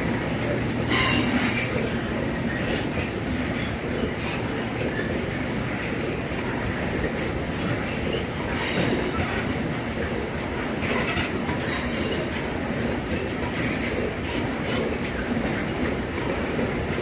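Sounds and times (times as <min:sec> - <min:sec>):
train wheels rumbling and clacking: 0:00.0 - 0:17.0
high wheel squeals: 0:00.9 - 0:01.7.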